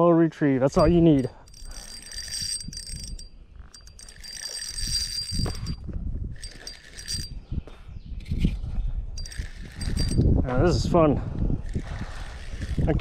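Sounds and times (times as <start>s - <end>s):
fishing reel whining: 0.8s - 5.8s, 6.4s - 7.4s, 9.2s - 10.3s, 11.6s - 13.0s.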